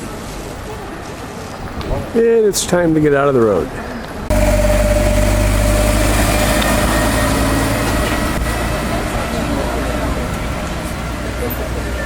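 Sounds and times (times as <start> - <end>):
vehicle engine humming: 4.3 - 12.0.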